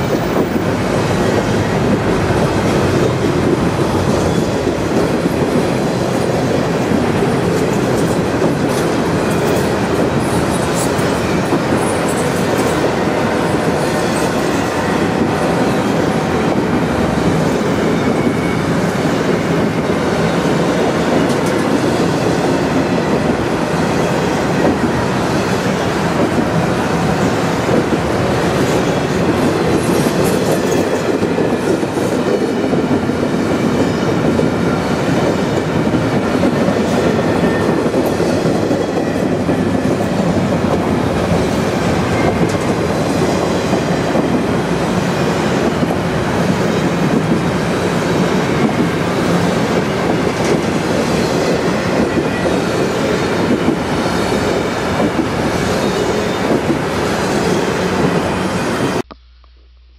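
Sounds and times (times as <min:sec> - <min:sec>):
steel wheels rumbling on rail: 0:00.0 - 0:59.1.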